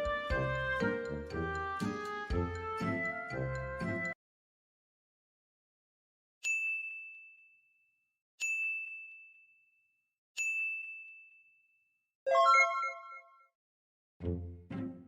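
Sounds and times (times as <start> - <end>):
high bell dings: 6.4 - 7.6, 8.4 - 9.6, 10.4 - 11.6
bright multi-note chime: 12.3 - 13.3.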